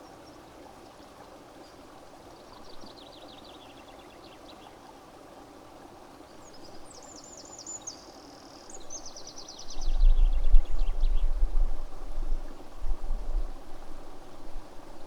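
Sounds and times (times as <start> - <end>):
flowing water rushing: 0.0 - 7.6
wind buffeting microphone: 9.7 - 14.6.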